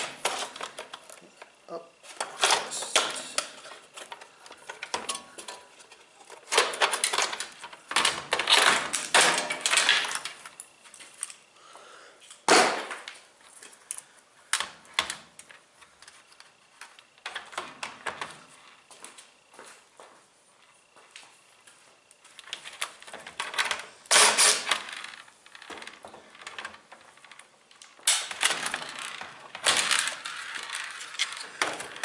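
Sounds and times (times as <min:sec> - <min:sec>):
plastic and metal parts clattering: 0:00.0 - 0:11.4, 0:22.4 - 0:32.0.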